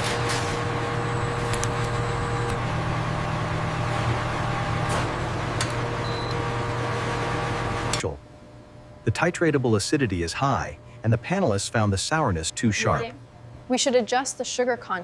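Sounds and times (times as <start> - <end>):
machinery humming: 0.0 - 8.2.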